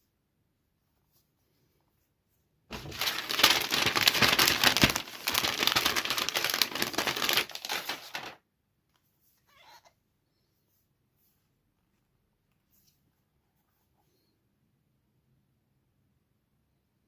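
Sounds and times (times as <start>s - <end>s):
packaging crinkling: 2.7s - 8.4s.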